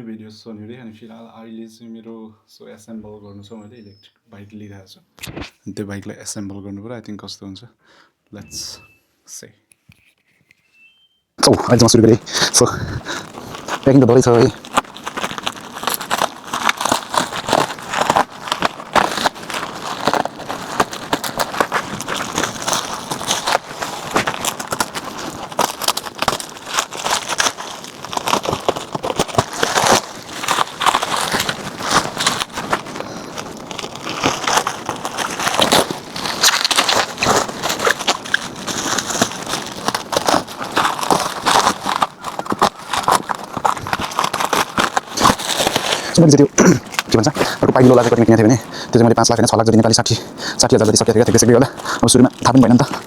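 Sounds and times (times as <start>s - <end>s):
packing material crinkling: 11.4s - 53.0s.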